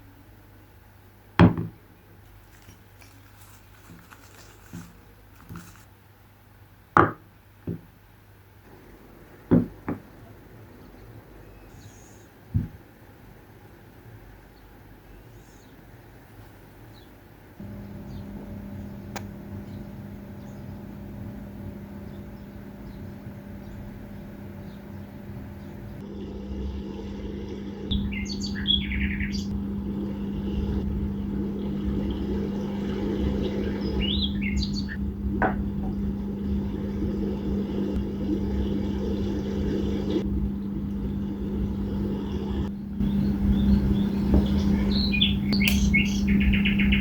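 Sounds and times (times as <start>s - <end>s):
birds chirping: 8.8s - 13.0s, 16.8s - 26.1s, 27.0s - 47.0s
steady low hum: 17.4s - 47.0s
low rumble: 17.6s - 47.0s.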